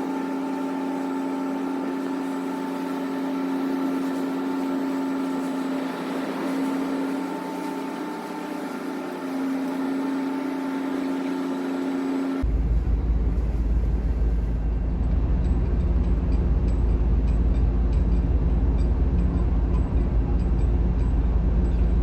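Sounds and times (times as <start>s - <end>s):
ship engines droning: 0.0s - 22.0s
low rumble: 12.4s - 22.0s.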